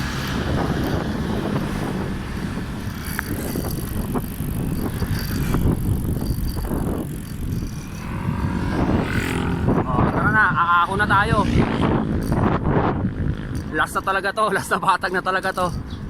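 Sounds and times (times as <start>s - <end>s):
bicycle road rumble: 0.0s - 16.0s
wind buffeting microphone: 0.0s - 16.0s.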